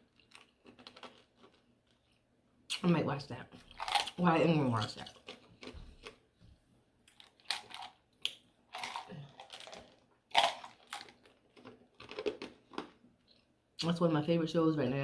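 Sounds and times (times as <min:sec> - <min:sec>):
chewing and mouth smacks: 0:00.0 - 0:02.8, 0:07.0 - 0:13.5.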